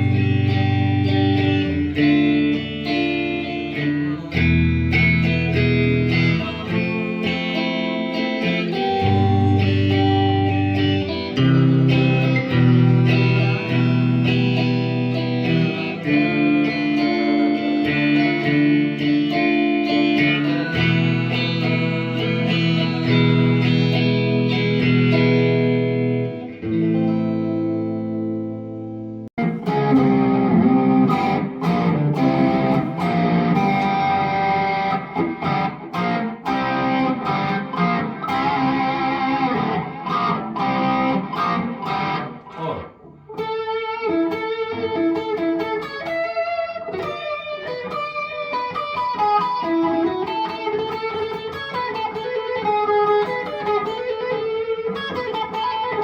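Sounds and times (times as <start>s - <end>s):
guitar-led background music: 0.0s - 56.0s.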